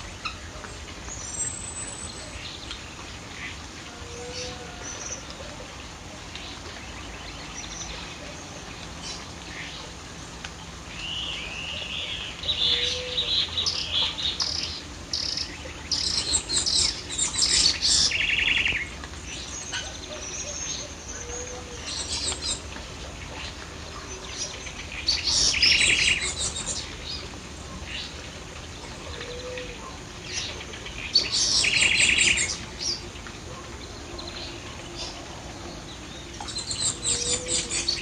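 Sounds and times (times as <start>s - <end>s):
birds chirping and trilling: 11.1s - 27.3s, 29.1s - 38.0s.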